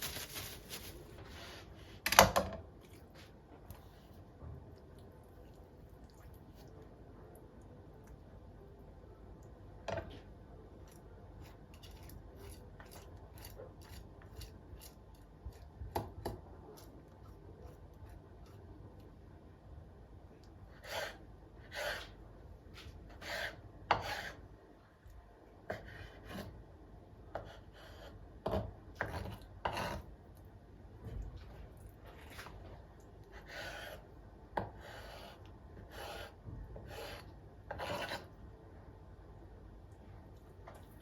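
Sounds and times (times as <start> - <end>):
scraping and rubbing strokes: 0.0 - 2.0.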